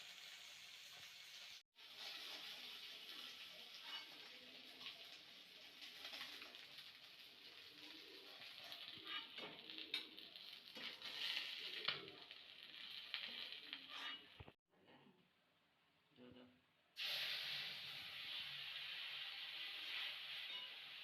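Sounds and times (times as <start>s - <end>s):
food sizzling in hot oil: 0.0s - 14.6s, 17.0s - 21.0s.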